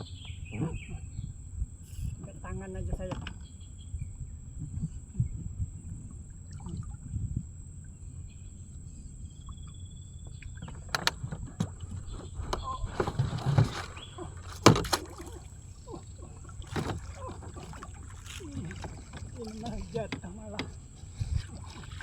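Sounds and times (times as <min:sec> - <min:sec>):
fish handling clatter: 0:10.6 - 0:22.0.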